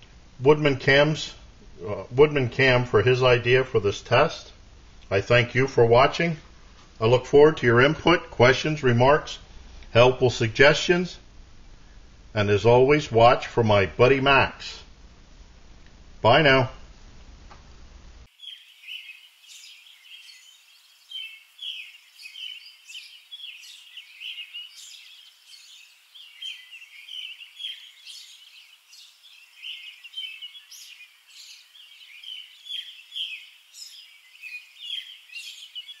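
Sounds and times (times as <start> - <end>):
small birds chirping: 18.2 - 36.0.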